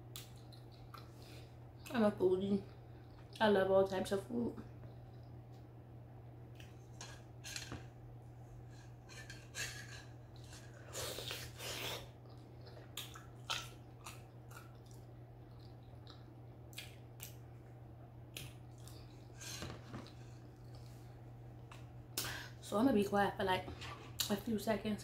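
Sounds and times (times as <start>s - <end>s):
wet chewing: 10.3s - 17.4s.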